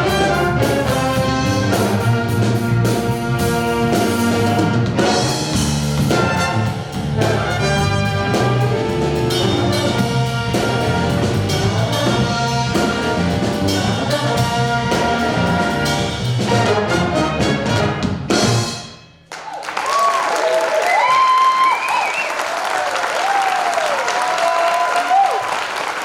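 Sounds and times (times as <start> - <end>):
steady bass line: 0.0 - 18.9
jazz band playing funk: 0.0 - 19.1
trumpets and trombones hits: 0.0 - 19.3.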